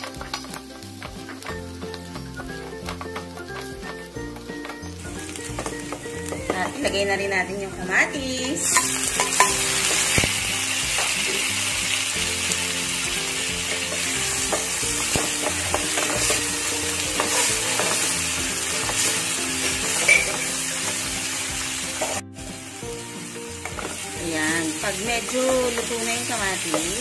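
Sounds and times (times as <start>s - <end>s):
vegetables sizzling in oil: 0.0s - 27.0s
spatula scraping a wok: 13.6s - 22.2s.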